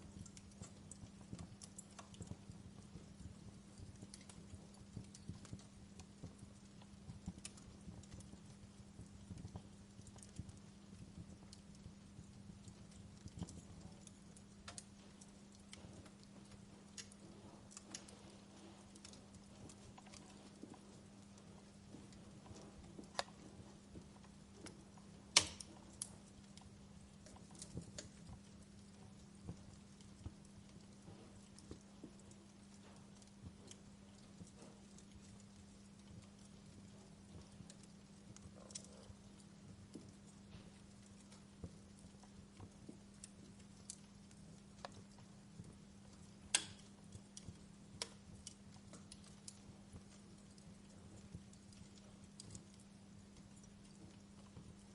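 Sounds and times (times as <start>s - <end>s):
faint low hum: 0.0s - 54.9s
wood fire crackling: 0.0s - 54.9s.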